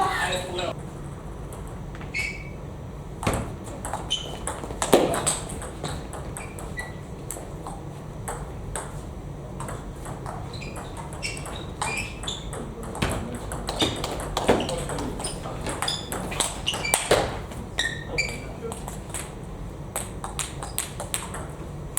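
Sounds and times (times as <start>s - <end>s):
table tennis ball knocks: 3.2s - 7.4s, 9.6s - 17.4s.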